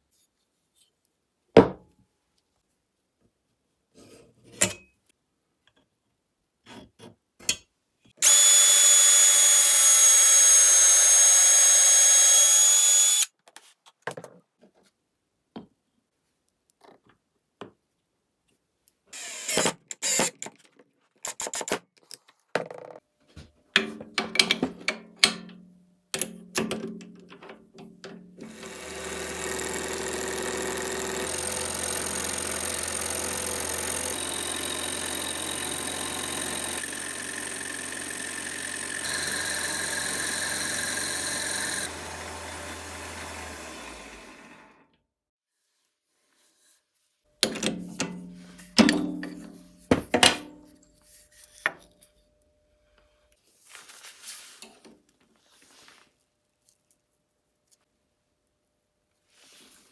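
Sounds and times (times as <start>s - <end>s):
motor running: 8.2s - 13.3s, 28.4s - 44.8s
power tool running: 8.2s - 13.3s, 28.4s - 44.8s.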